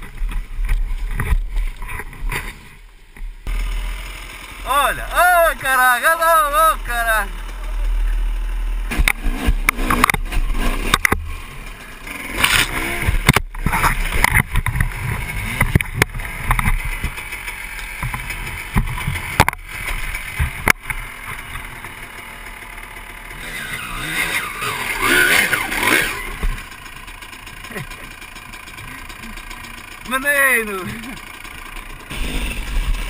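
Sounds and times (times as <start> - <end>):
dirt bike engines revving: 3.4 - 33.0
sharp knocks and clatter: 8.9 - 11.3, 12.4 - 22.0.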